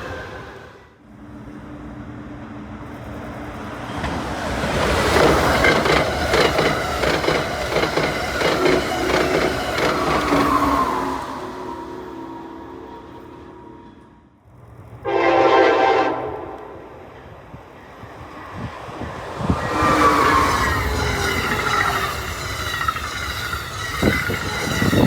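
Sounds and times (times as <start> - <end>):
passenger train passing: 0.0 - 25.0
wheel clicks over rails: 3.9 - 10.7.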